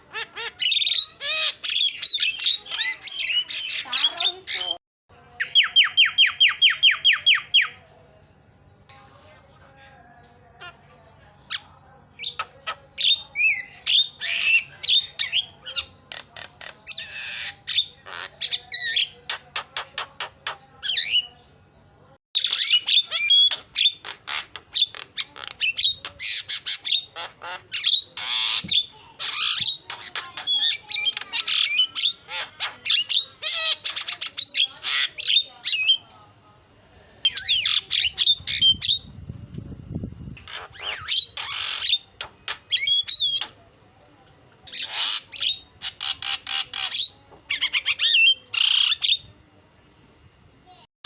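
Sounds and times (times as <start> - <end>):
myna chattering: 0.0 - 4.8, 22.4 - 36.0.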